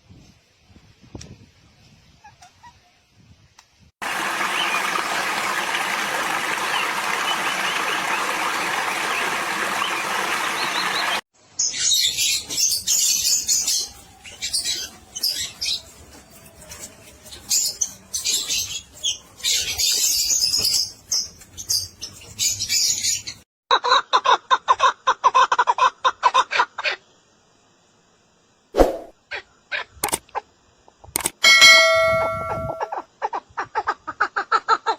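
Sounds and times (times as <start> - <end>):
high quick bird chirps and trills: 4.3 - 16.0.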